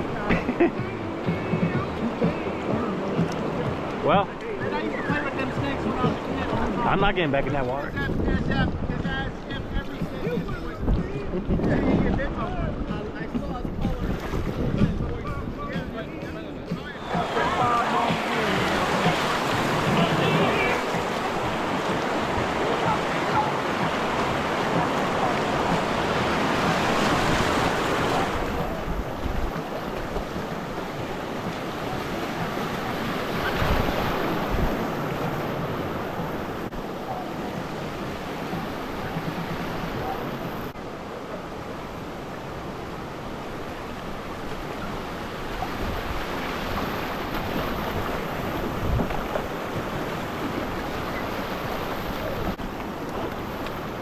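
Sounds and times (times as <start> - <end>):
river water rushing and splashing: 0.0 - 8.4, 12.6 - 54.0
wind buffeting microphone: 7.8 - 40.8, 44.2 - 54.0.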